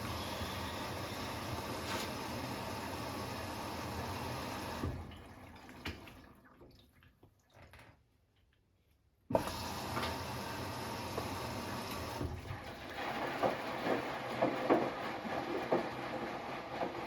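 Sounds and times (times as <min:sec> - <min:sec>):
washing machine filling with water: 0:00.0 - 0:08.0, 0:09.3 - 0:17.0
faint water drips: 0:05.0 - 0:08.6.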